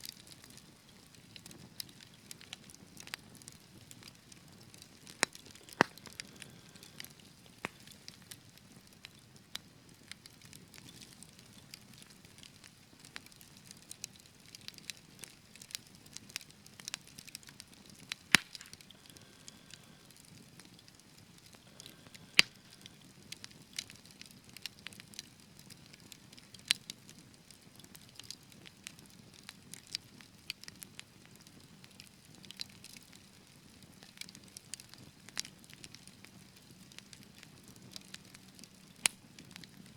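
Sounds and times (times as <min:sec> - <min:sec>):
wood fire crackling: 0:00.0 - 0:39.9
fire hissing: 0:04.6 - 0:08.2, 0:18.2 - 0:20.7, 0:21.3 - 0:23.2.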